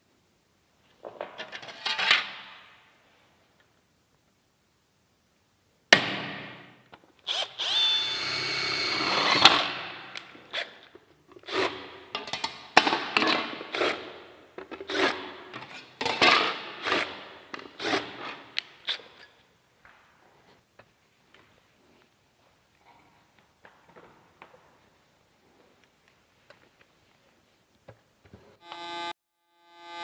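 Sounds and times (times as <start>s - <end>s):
power drill running: 7.3s - 9.8s.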